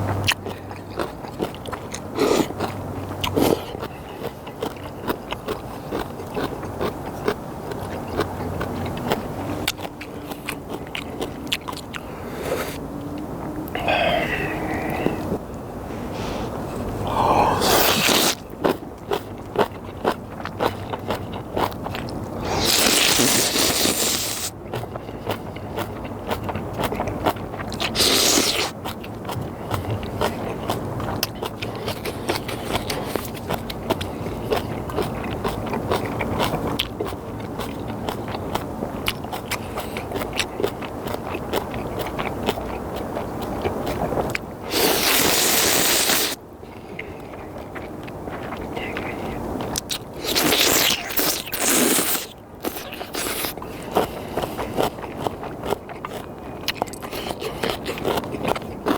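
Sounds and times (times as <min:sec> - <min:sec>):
chewing clicks: 0:00.0 - 0:15.2, 0:17.5 - 0:58.9
noodle slurping: 0:16.0 - 0:18.4, 0:22.4 - 0:24.5, 0:27.8 - 0:28.8, 0:44.7 - 0:46.4, 0:50.2 - 0:55.0.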